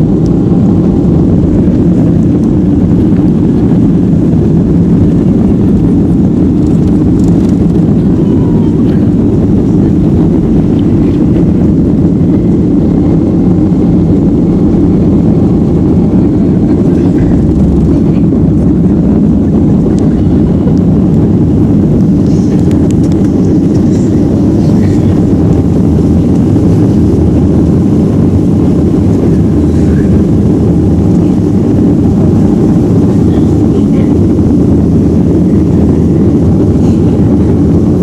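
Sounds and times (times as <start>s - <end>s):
jet engine rumble in cabin: 0.0s - 38.0s.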